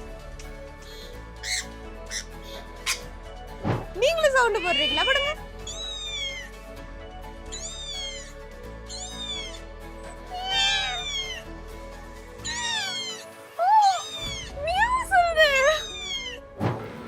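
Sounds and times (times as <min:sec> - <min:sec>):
background music: 0:00.0 - 0:17.0
cat meowing: 0:01.4 - 0:02.2, 0:04.5 - 0:06.5, 0:07.5 - 0:08.3, 0:08.9 - 0:09.6, 0:10.3 - 0:11.4, 0:12.4 - 0:16.4.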